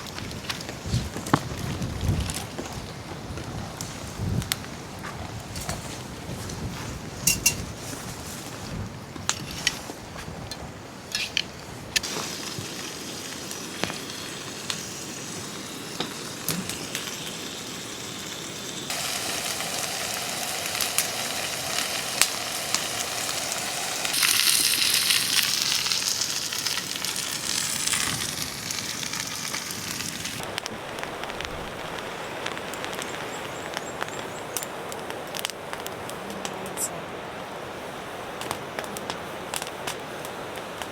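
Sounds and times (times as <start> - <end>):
campfire crackling and popping: 0.0 - 7.9, 8.6 - 40.9
food sizzling in a pan: 12.0 - 30.4.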